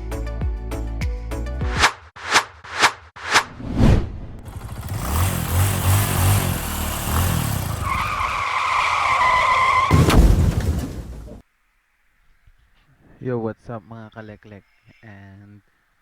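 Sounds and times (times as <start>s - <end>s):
vehicle engine running hard: 4.4s - 8.4s
tyre squeal: 7.2s - 10.0s.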